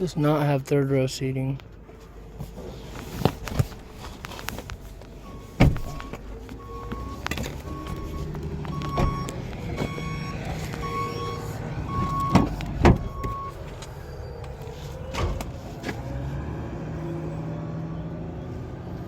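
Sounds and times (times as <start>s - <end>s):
low vehicle hum: 0.0s - 19.0s
electronic beeps: 5.2s - 12.4s.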